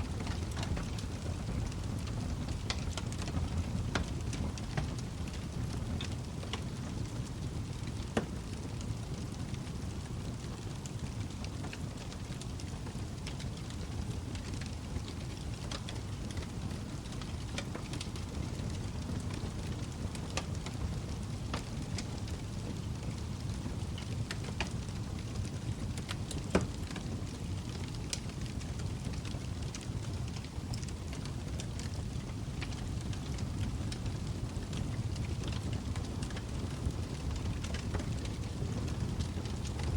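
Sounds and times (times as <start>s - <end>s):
log fire crackling: 0.0s - 39.9s.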